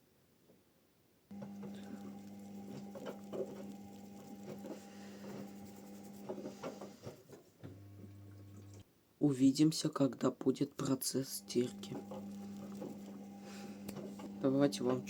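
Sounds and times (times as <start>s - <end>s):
low hum: 1.3s - 6.4s, 7.7s - 8.8s, 11.4s - 15.0s
washing machine motor hum: 1.3s - 8.8s, 11.2s - 15.0s.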